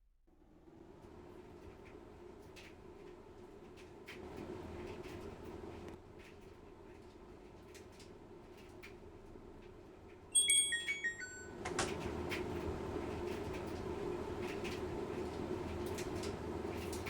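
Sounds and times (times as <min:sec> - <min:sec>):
washing machine running: 0:00.3 - 0:17.0
washing machine beeps: 0:10.3 - 0:12.0.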